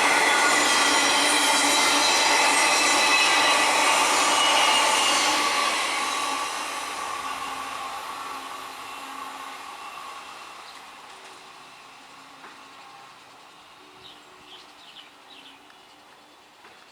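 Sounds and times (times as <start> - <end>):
electric train passing: 0.0 - 16.5.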